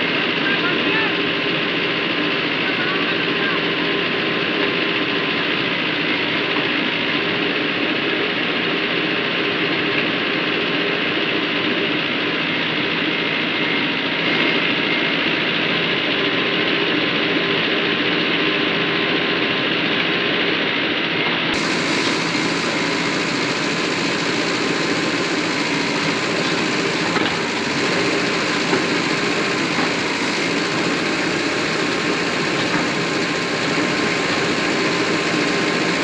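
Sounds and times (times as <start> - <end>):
tractor diesel engine running: 21.6 - 36.0.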